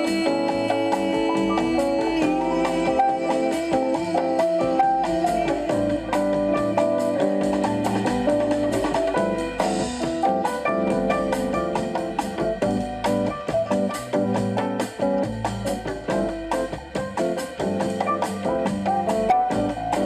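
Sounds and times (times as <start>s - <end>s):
drums: 0.0s - 20.0s
guitar: 0.0s - 20.0s.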